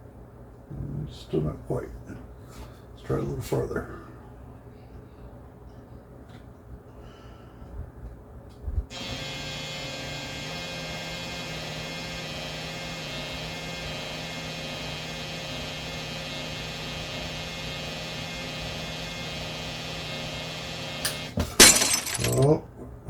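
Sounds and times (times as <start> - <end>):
small electric drill running: 8.9 - 21.1.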